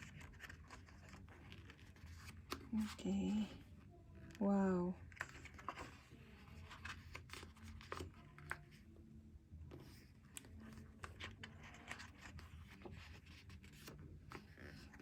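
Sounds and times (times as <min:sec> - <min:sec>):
paper pages rustling: 0:00.0 - 0:04.4, 0:05.0 - 0:08.9, 0:09.6 - 0:15.0.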